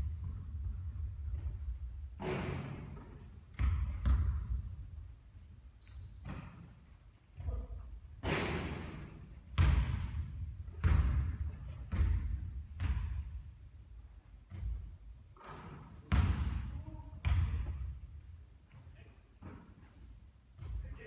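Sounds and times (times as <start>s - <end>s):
basketball bouncing on a court: 0.0s - 5.0s, 8.2s - 13.5s, 14.4s - 15.0s, 15.7s - 18.0s, 20.6s - 21.0s
high squeak: 5.8s - 6.3s.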